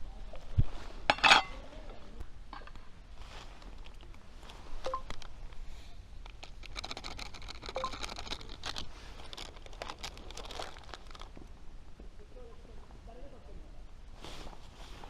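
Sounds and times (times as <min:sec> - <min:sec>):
fire crackling: 0:03.0 - 0:12.0.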